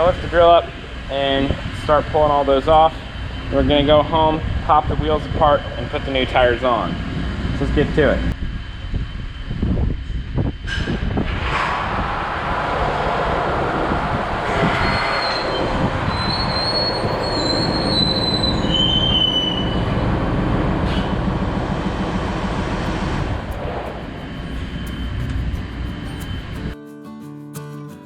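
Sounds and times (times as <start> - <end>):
high metallic squeals: 14.4 - 20.0, 22.8 - 26.8
farm machinery rumbling: 19.8 - 26.8.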